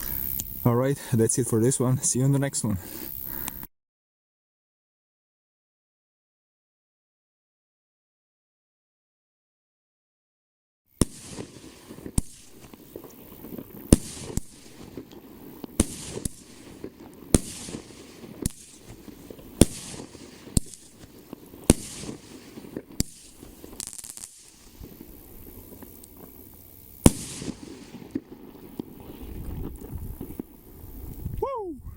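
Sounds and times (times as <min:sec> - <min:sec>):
firework crackling and hiss: 0:00.0 - 0:03.7, 0:10.9 - 0:31.5
firework bangs: 0:11.0 - 0:31.1.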